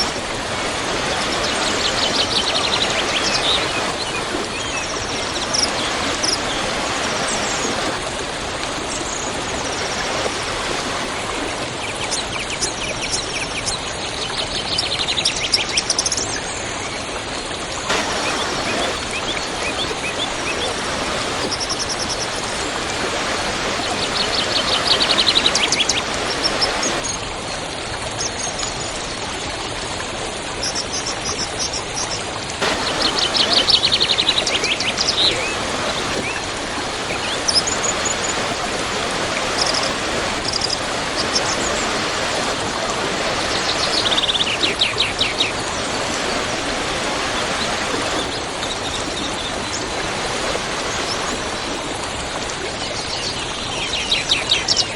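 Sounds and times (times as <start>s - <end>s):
waterfall roaring: 0.0s - 13.1s, 17.7s - 27.3s, 32.6s - 52.6s.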